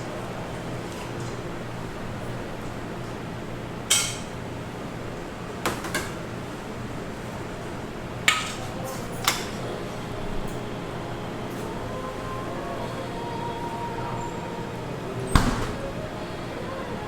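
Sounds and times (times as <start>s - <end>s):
low background hum: 0.0s - 17.0s
dishes and cutlery clinking: 8.3s - 9.8s.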